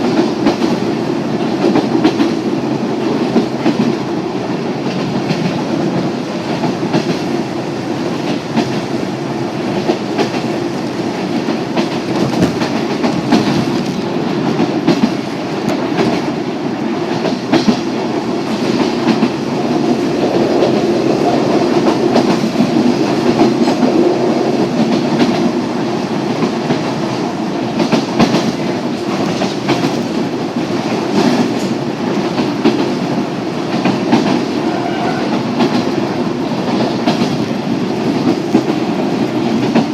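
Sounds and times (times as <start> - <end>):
train wheels on rail: 0.0 - 39.9
wheels clacking over rail joints: 4.8 - 20.0, 26.3 - 39.9.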